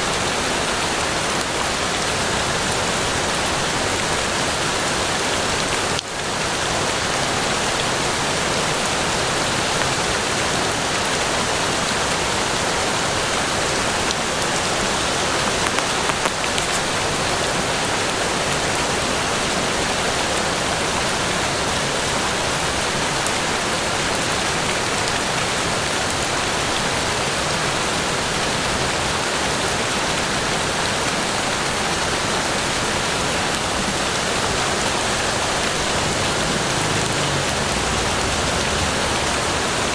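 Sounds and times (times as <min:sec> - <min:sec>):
rain on foliage: 0:00.0 - 0:39.9.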